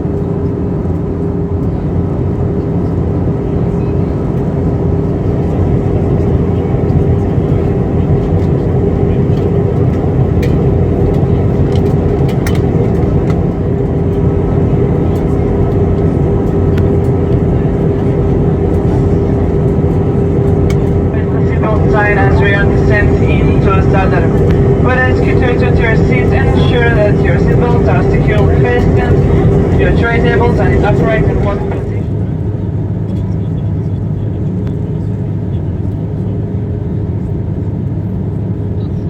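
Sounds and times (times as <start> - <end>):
jet airliner cabin noise: 0.0 - 39.0
steady hum tone: 4.8 - 33.5.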